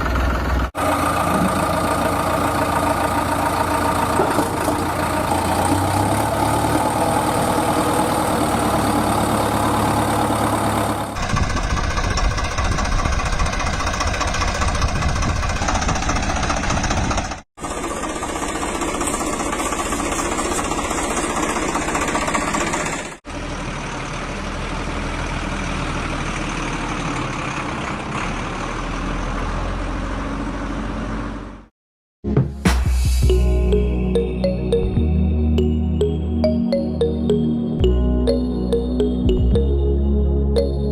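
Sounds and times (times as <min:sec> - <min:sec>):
vehicle engines running: 0:00.0 - 0:31.7.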